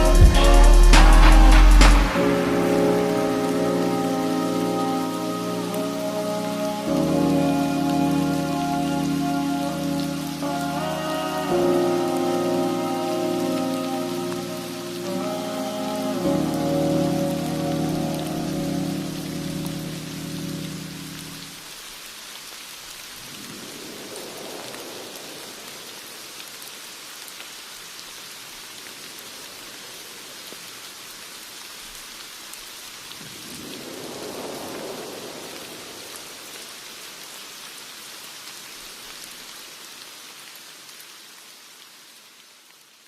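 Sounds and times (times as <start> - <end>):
steady rain: 0.0 - 43.0
low rolls of thunder: 23.2 - 26.3, 33.2 - 37.0.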